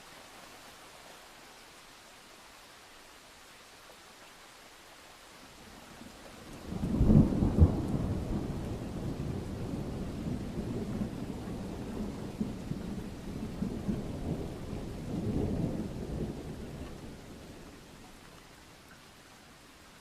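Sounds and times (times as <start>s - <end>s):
steady rain hiss: 0.0s - 20.0s
distant thunder rumbling: 6.4s - 18.0s.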